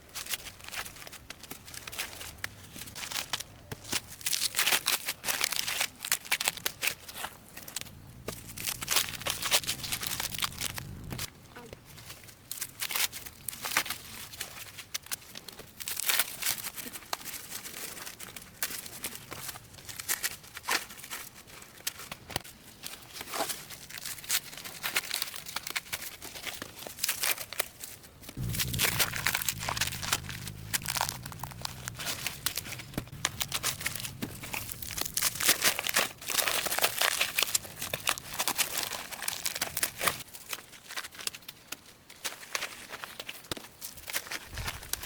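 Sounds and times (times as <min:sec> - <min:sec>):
crinkling and rustling handling: 0:00.0 - 0:45.0
low steady rumble: 0:28.4 - 0:36.0, 0:44.5 - 0:45.0.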